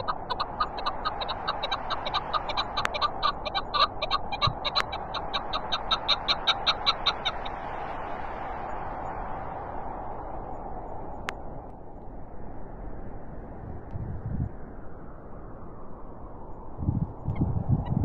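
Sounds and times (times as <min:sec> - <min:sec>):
partridge clucking calls: 0:00.0 - 0:07.6
wind rushing: 0:00.0 - 0:18.0.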